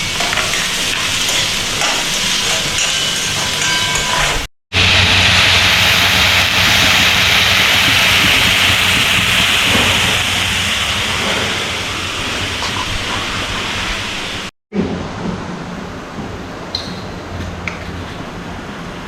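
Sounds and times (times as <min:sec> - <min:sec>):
food sizzling in hot oil: 0:00.0 - 0:14.5.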